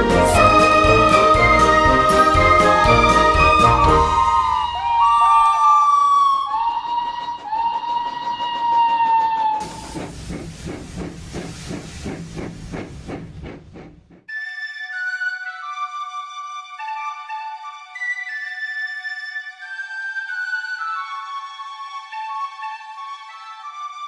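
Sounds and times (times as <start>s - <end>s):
flute-like melody: 0.0s - 8.6s, 14.3s - 24.0s
steam locomotive whistle: 0.0s - 10.0s
steam engine chuffing: 6.7s - 14.3s.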